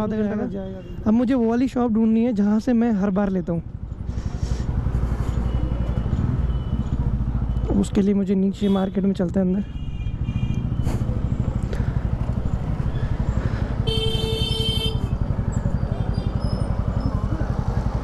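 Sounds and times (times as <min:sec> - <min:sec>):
motorcycle engine running: 0:03.6 - 0:08.4, 0:10.1 - 0:18.0
vehicle horn tooting: 0:13.8 - 0:15.1.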